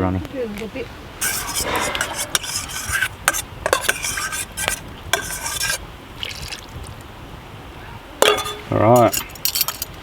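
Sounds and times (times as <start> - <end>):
spoon stirring stew in pot: 1.2 - 5.8.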